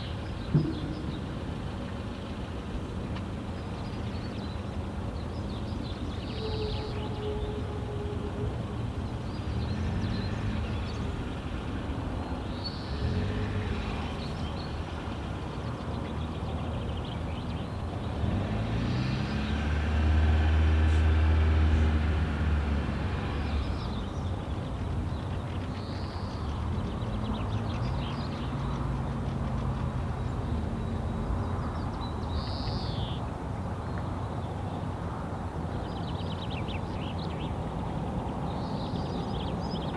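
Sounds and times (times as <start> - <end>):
traffic engine rumble: 0.0 - 39.9
vehicle passing: 7.4 - 32.3.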